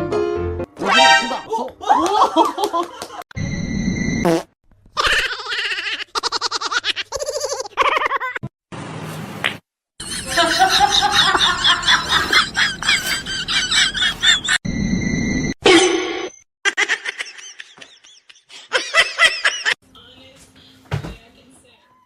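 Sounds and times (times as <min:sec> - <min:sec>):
rapid pulsing laughter: 0:10.0 - 0:14.6.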